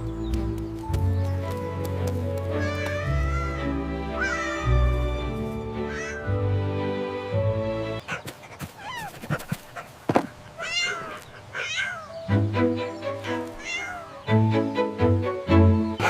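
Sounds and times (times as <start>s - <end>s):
background music: 0.0s - 8.1s, 12.1s - 16.0s
cat meowing: 2.6s - 5.0s, 10.6s - 12.1s, 13.6s - 14.2s.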